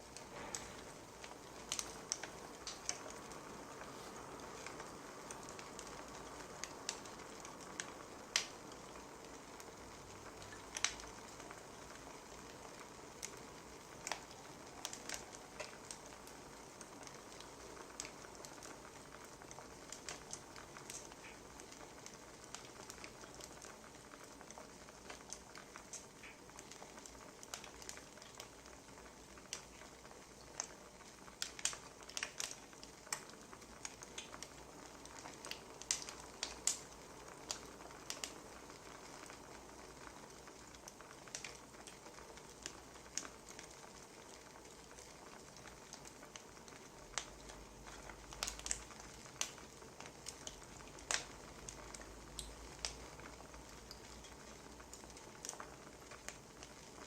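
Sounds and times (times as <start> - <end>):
soft hiss of fire: 0.0 - 57.0
burning firewood pops and snaps: 0.1 - 9.0, 10.4 - 11.6, 14.0 - 16.4, 19.4 - 21.8, 25.0 - 26.8, 31.4 - 39.4, 40.8 - 43.7, 46.0 - 56.8.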